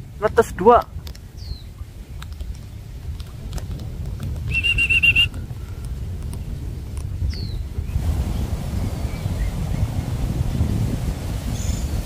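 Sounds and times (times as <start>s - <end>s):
bird falling whistle: 4.5s - 5.4s
bird trill: 4.5s - 5.7s.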